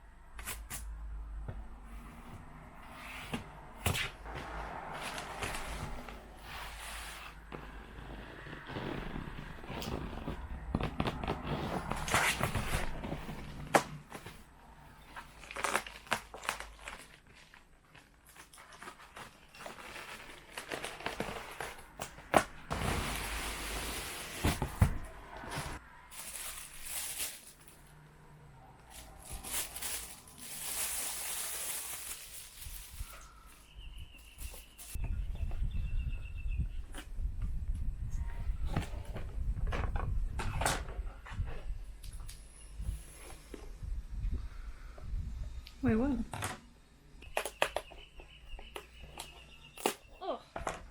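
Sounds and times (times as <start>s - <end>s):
packaging crinkling and rustling: 8.6s - 27.9s, 28.9s - 33.6s.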